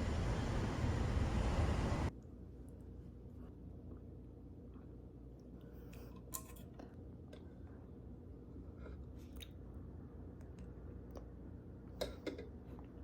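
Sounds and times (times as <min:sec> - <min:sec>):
low hum: 0:00.0 - 0:02.1.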